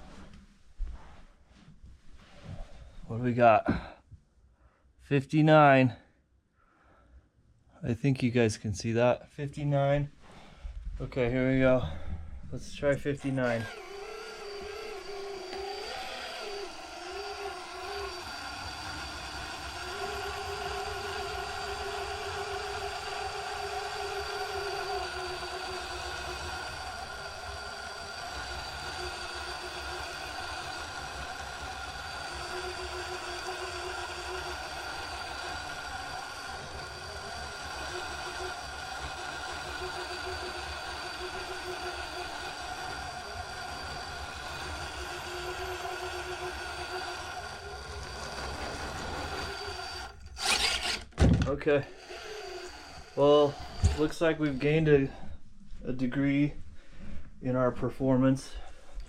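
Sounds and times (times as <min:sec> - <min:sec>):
electric motor whining: 0:12.9 - 0:55.2.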